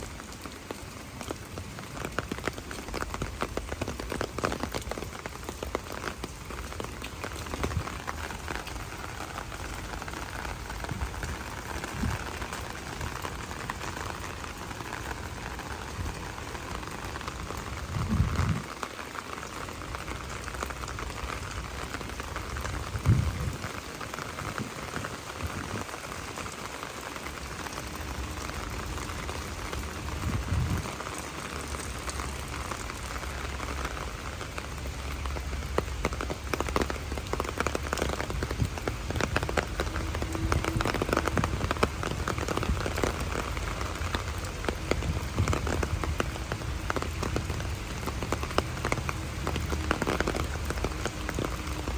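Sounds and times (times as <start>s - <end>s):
rain falling: 0.0s - 51.9s.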